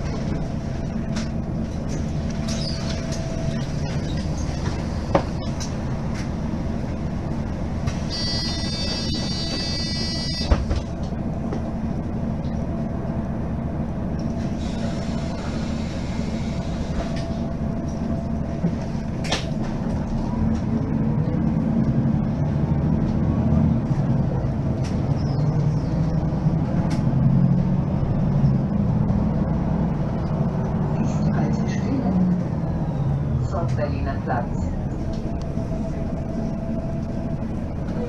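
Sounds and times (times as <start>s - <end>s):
bus engine drone: 0.0s - 38.0s
high tone: 8.1s - 10.5s.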